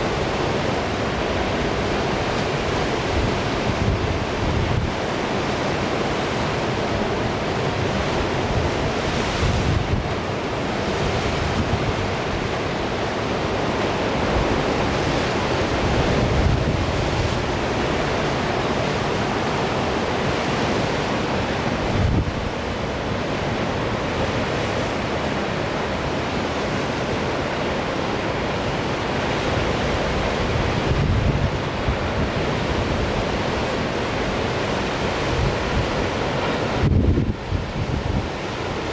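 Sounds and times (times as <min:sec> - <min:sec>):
wind buffeting microphone: 0:02.6 - 0:05.1, 0:08.0 - 0:10.3, 0:14.1 - 0:22.8, 0:29.9 - 0:38.9.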